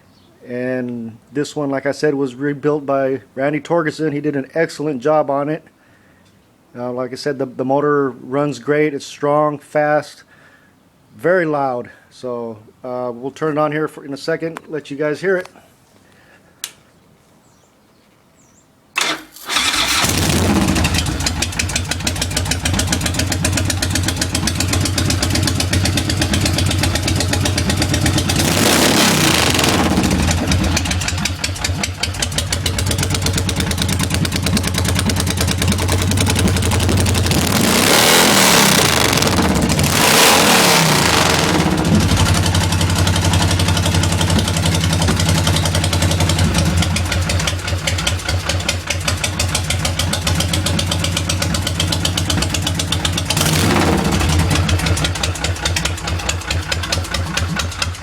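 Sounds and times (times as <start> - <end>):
motorcycle engine revving: 19.0 - 58.0
motorcycle engine starting and idling: 19.0 - 58.0.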